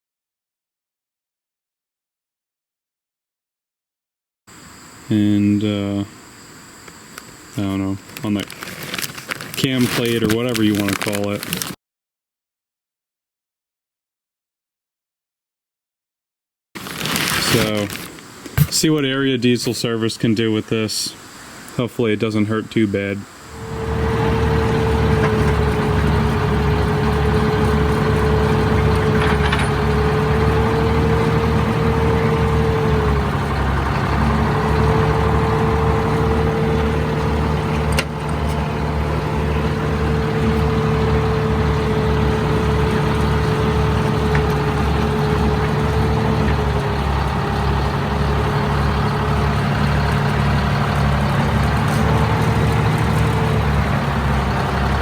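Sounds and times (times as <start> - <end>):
engine running: 23.5 - 55.0.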